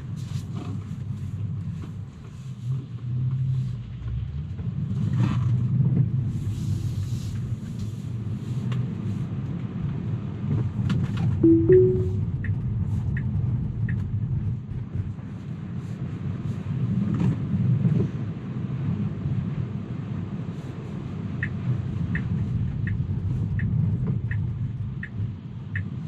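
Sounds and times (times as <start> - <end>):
road and tyre rumble: 0.0 - 11.4, 12.2 - 26.0
two-note rising chime: 11.4 - 12.2
soft ticks: 21.4 - 26.0.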